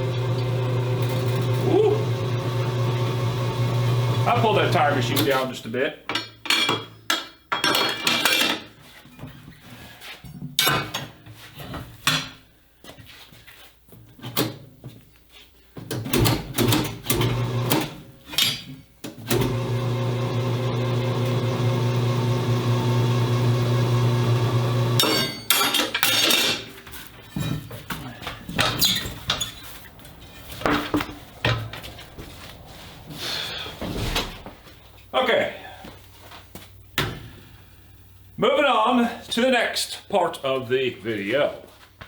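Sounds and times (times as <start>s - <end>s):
motor hum: 0.0s - 4.5s, 19.3s - 25.0s
metal clanks and knocks: 25.0s - 29.6s.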